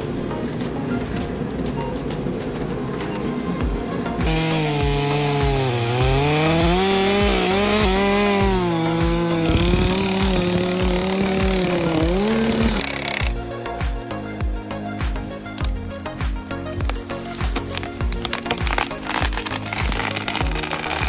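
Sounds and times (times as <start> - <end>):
low thumping beat: 0.5 - 21.0
chainsaw cutting wood: 4.2 - 13.4, 16.8 - 21.0.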